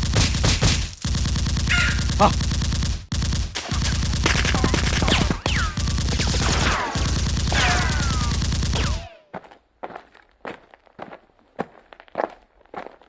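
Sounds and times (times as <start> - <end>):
rapid automatic gunfire: 0.0 - 9.2.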